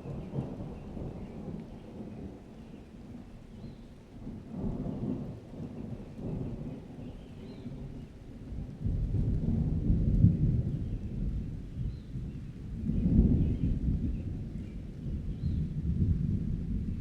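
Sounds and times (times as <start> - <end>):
steady rain: 0.0 - 17.0
rolling thunder: 4.2 - 17.0.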